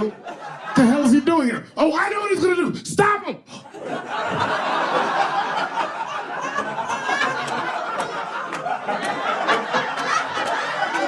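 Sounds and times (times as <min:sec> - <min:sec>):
audience laughing: 0:00.0 - 0:01.2, 0:03.6 - 0:11.0
scattered clapping: 0:07.1 - 0:11.0.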